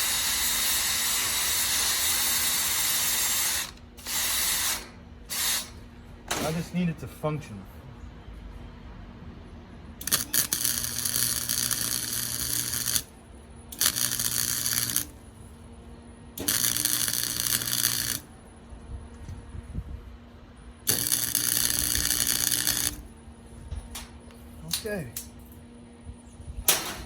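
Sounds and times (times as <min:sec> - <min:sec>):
welder low hum: 0:00.0 - 0:05.8, 0:10.0 - 0:15.6, 0:16.3 - 0:18.4, 0:20.7 - 0:23.1
welding arc crackling and sizzling: 0:00.0 - 0:05.8, 0:10.0 - 0:15.2, 0:16.4 - 0:18.3, 0:20.9 - 0:23.1.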